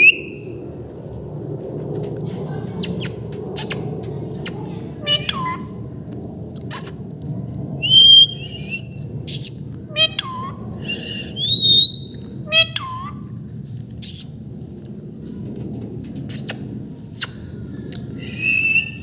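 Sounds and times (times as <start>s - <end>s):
harsh parrot calls dropping in pitch: 5.0s - 5.7s, 9.3s - 10.6s, 11.4s - 13.2s
parrot squawks: 5.0s - 5.7s, 9.3s - 10.6s, 11.4s - 13.2s
parrot whistled notes: 7.8s - 13.2s.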